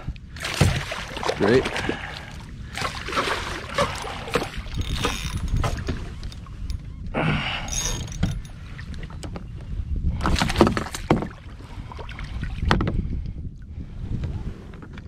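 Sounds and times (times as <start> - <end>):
knocks and rustles on kayak: 0.4 - 6.8, 7.7 - 11.6, 12.4 - 13.2.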